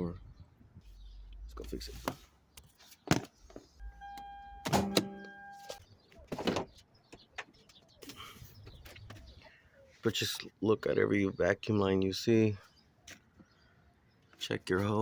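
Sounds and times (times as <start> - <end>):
steady electronic beep: 3.8 - 5.8.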